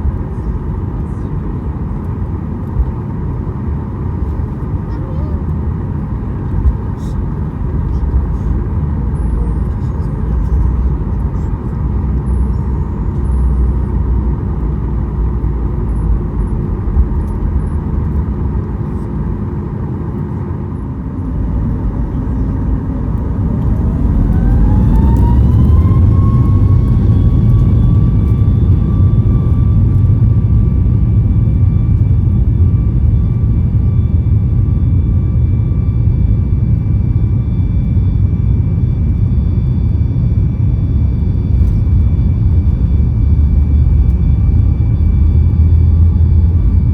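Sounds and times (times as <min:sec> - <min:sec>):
jet engines whining: 0:00.0 - 0:46.9.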